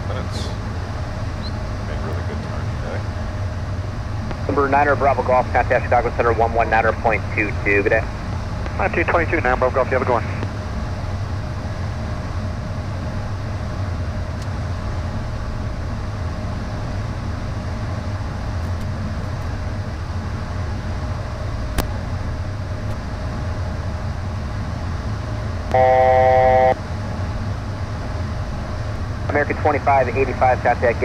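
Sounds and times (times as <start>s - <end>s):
jet engines and airflow hum: 0.0s - 31.0s
loud electronic tone: 25.7s - 26.8s.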